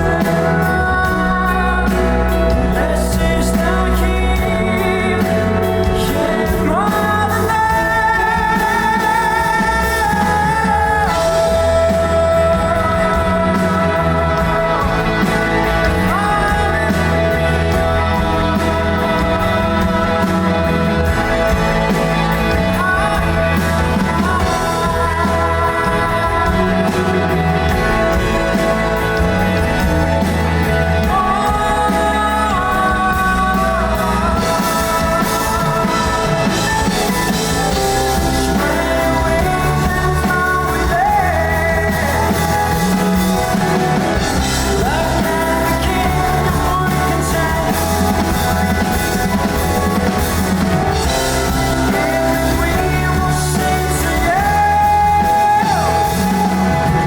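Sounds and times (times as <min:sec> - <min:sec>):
person singing long notes: 0:00.0 - 0:57.0
rock band playing: 0:00.0 - 0:57.0.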